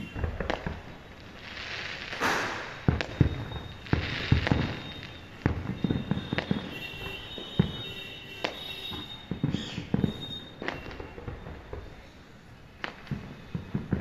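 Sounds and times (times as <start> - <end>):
fireworks bangs and crackles: 0.0 - 14.0
faint high whistle: 2.2 - 12.2.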